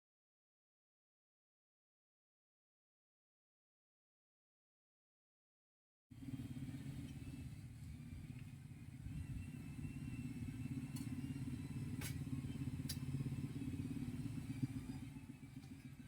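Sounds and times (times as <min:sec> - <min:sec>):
engine rumbling: 0:06.1 - 0:16.0.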